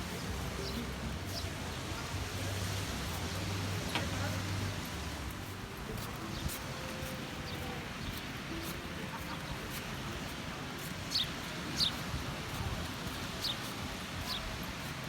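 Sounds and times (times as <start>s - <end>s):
small birds chirping: 6.3s - 12.1s, 13.0s - 14.8s.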